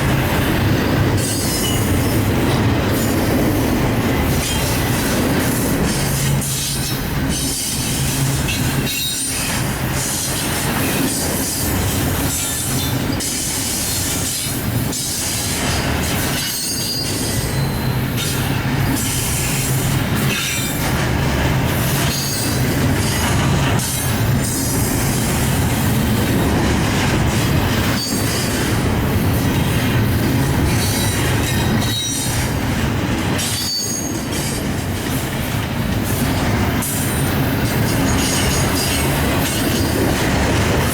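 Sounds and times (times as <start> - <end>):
train wheels on rails: 0.0 - 40.9
high-pitched wheel squeals: 33.5 - 34.2.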